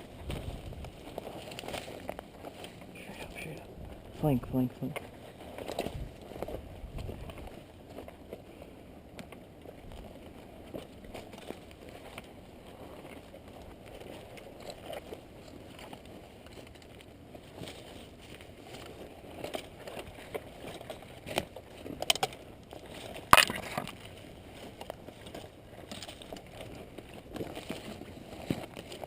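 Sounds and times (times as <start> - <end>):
footsteps crunching through brush: 0.0 - 4.2, 17.3 - 29.0.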